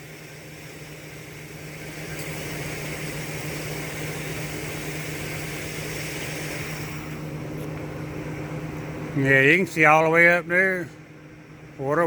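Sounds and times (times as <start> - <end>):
steady hiss: 0.0 - 7.8
vehicle idling hum: 0.0 - 12.0.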